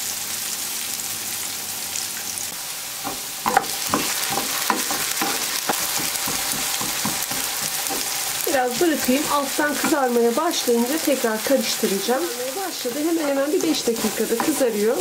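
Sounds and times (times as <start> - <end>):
potatoes sizzling in oil: 0.0 - 15.0
wooden spoon scraping pan: 3.0 - 15.0.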